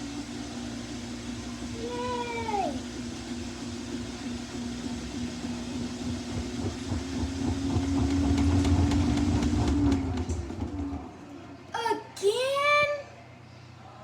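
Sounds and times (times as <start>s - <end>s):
washing machine motor hum: 0.0s - 13.5s
drum knocking rapidly: 5.0s - 10.8s.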